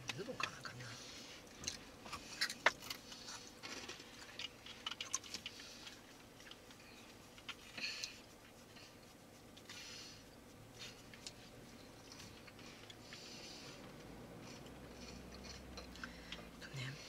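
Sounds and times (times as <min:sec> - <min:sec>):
person chewing crunchy snack: 0:01.6 - 0:06.7.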